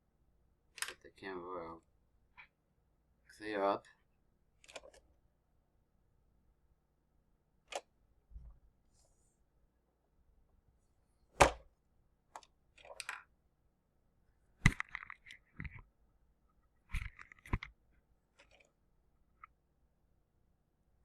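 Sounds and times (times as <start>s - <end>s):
plastic toy clicks and knocks: 0.8s - 1.1s, 4.6s - 5.0s, 12.4s - 13.3s.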